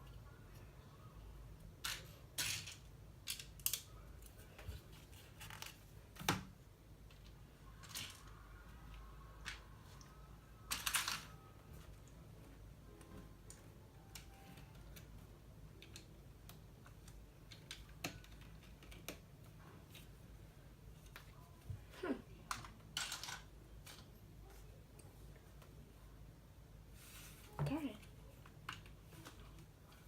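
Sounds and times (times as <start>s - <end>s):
plastic bricks clicking and clattering: 1.8s - 3.9s, 10.7s - 11.4s, 22.4s - 24.2s.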